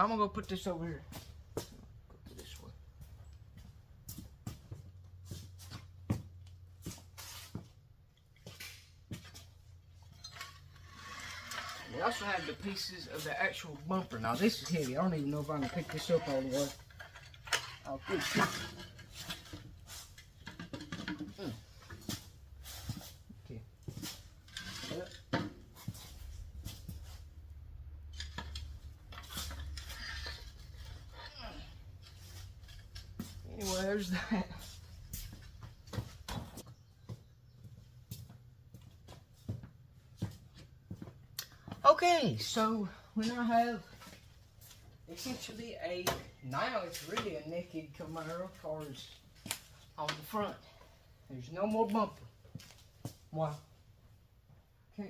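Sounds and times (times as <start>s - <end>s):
footsteps: 0.5s - 9.6s, 28.4s - 42.6s.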